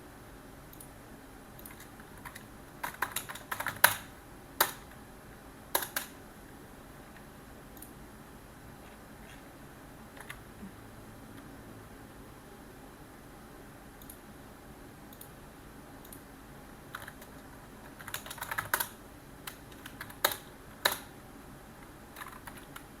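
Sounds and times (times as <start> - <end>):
computer keyboard typing: 1.6 - 5.0, 5.7 - 6.2, 10.1 - 10.4, 16.9 - 21.1, 22.1 - 23.0.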